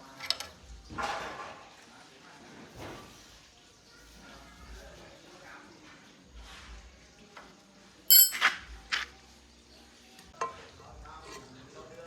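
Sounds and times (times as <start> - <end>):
metal pieces clinking: 8.1 - 8.5.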